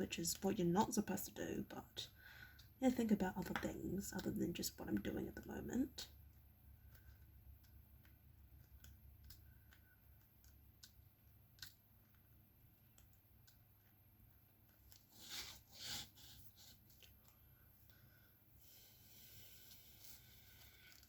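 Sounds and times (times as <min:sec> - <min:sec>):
pen tapping small clicks: 0:06.8 - 0:14.0.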